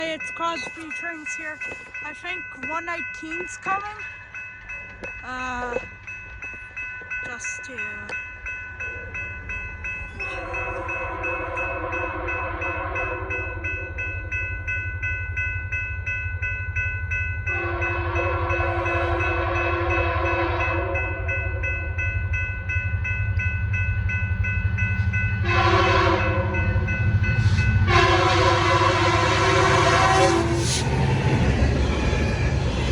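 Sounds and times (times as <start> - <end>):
steady rapid ringing: 0.0 - 29.6
locomotive horn blasts: 11.2 - 13.5, 17.5 - 21.2, 25.4 - 26.6, 27.8 - 30.8.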